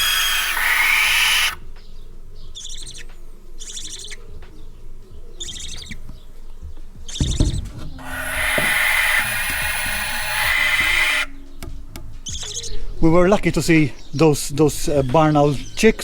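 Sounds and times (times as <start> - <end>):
owls screeching: 0.0 - 15.8
low bump: 5.7 - 16.0.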